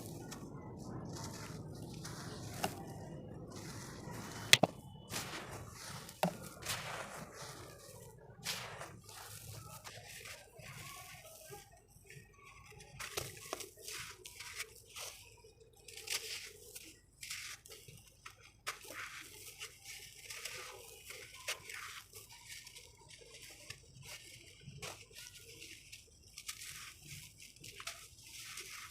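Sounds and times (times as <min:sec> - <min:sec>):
sand crust crunching: 0:00.0 - 0:11.7.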